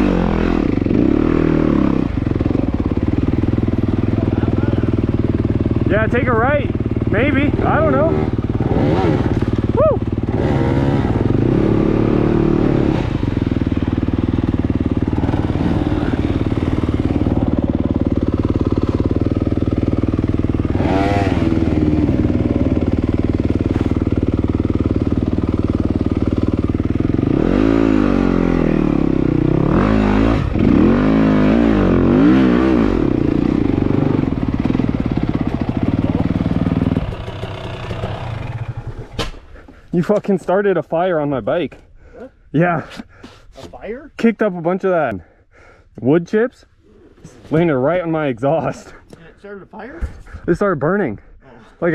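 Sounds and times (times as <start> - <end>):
dirt bike engine revving: 0.0 - 39.2.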